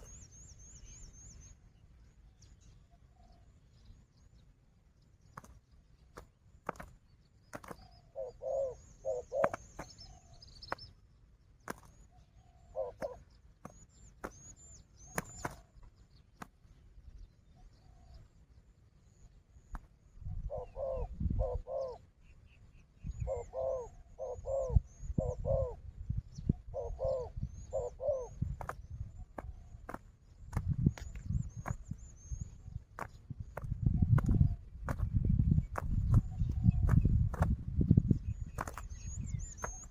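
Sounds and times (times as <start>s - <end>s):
small birds chirping: 0.0s - 39.9s
doves cooing: 7.6s - 10.4s, 11.7s - 14.4s, 20.4s - 22.1s, 23.2s - 25.8s, 26.6s - 28.8s
low thudding and rustling: 32.7s - 39.9s.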